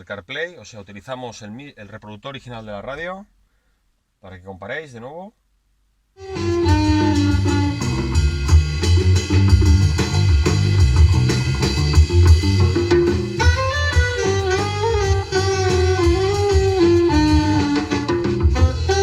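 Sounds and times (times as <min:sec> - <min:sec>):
jazz music with drums and saxophone: 0:06.2 - 0:19.0.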